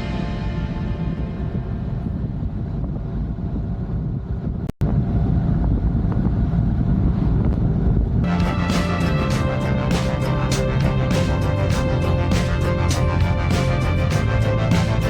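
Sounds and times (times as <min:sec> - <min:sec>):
music: 0:00.0 - 0:02.7, 0:08.3 - 0:15.0
wind rushing over microphone: 0:00.0 - 0:15.0.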